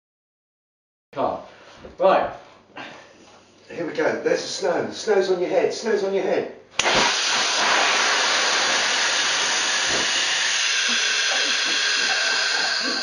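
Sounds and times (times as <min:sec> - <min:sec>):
airbag inflating with loud hiss: 0:06.8 - 0:13.0.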